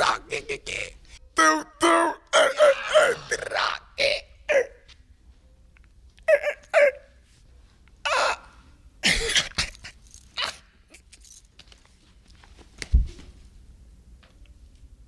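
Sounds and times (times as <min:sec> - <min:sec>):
man making vocal noises: 0:00.0 - 0:04.8.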